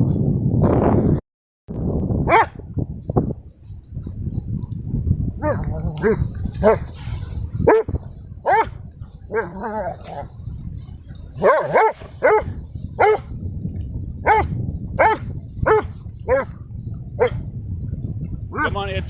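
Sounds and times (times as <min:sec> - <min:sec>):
dog yappy barks: 0:02.3 - 0:02.6, 0:05.4 - 0:06.8, 0:07.7 - 0:10.2, 0:11.4 - 0:13.3, 0:14.2 - 0:16.5.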